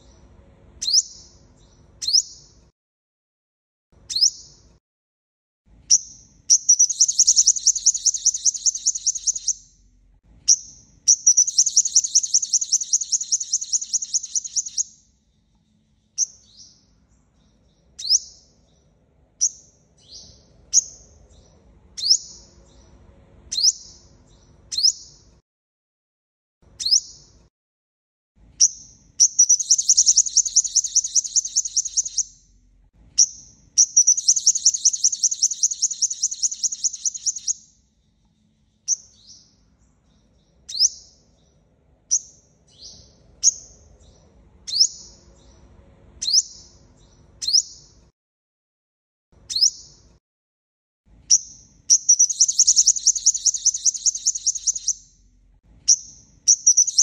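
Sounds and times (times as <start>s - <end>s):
bird high rapid trills: 6.7s - 9.6s, 11.3s - 14.8s, 29.4s - 32.2s, 34.0s - 37.6s, 52.0s - 55.0s.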